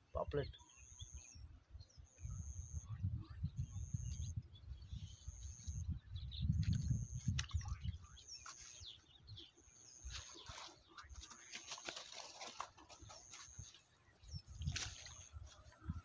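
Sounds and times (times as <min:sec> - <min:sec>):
clicks and rustles: 0:10.2 - 0:13.5.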